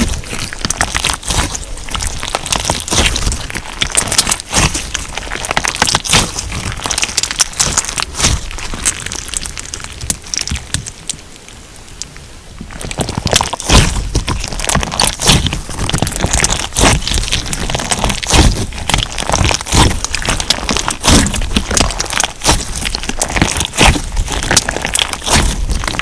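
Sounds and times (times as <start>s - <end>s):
slime crackling and popping: 0.0s - 26.0s.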